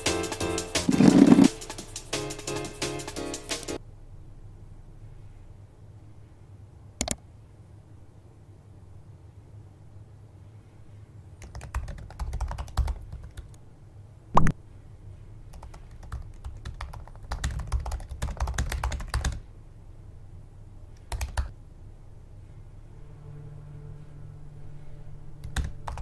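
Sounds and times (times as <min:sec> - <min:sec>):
laptop keyboard typing: 0:00.8 - 0:01.8, 0:11.4 - 0:13.6, 0:15.5 - 0:19.4, 0:21.0 - 0:21.5, 0:25.4 - 0:26.0
low steady hum: 0:03.8 - 0:26.0.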